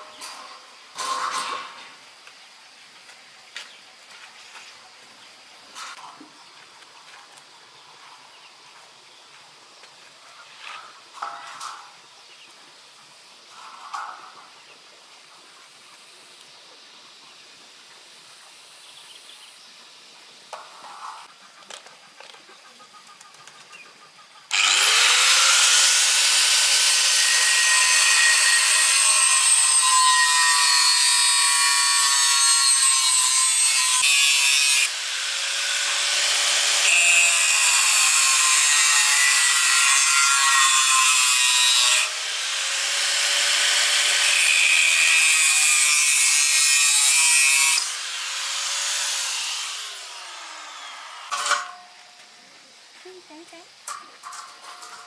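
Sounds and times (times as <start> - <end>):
angle grinder cutting metal: 24.5 - 51.8.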